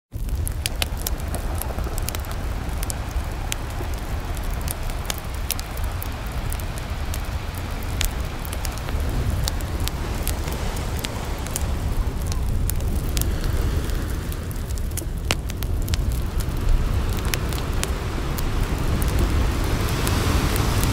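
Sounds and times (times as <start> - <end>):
campfire crackling and popping: 0.1 - 20.9
ocean surf rushing: 0.2 - 20.9.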